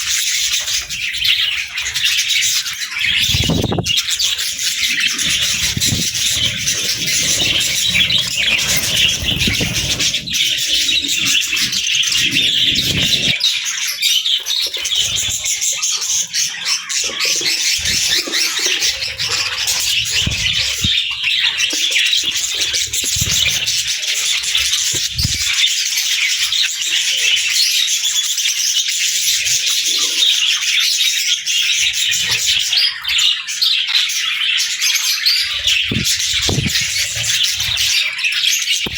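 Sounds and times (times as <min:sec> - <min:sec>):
budgerigars chirping and chattering: 0:00.0 - 0:38.9
low rustling: 0:04.6 - 0:13.4.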